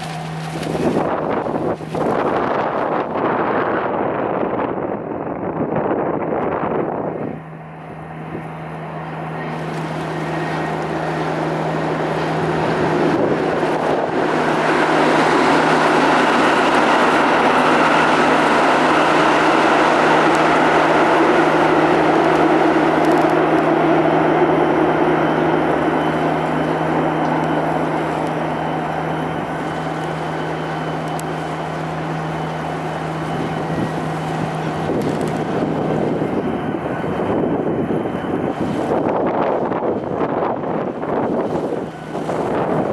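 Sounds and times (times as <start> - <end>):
low engine hum: 0.0 - 42.9
passing vehicle rumble: 9.0 - 36.4.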